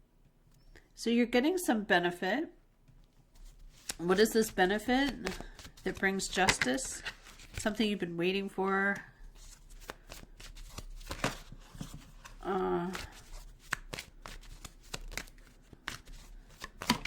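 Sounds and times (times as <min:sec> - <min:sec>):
cards being shuffled: 0:03.3 - 0:08.0, 0:09.3 - 0:17.0.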